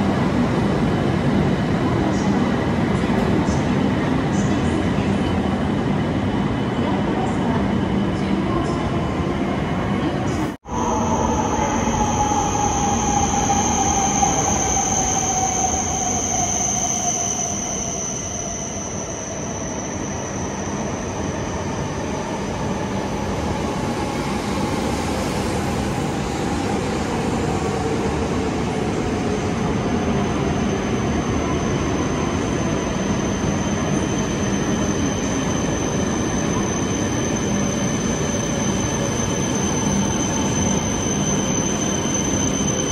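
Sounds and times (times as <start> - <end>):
thin high whistle: 10.7 - 21.1.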